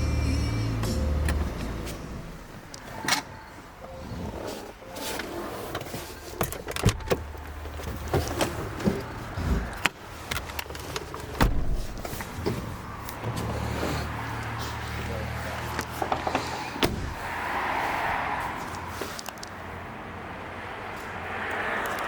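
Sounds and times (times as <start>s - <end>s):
car door clicks and knocks: 6.4s - 13.4s, 15.8s - 17.3s.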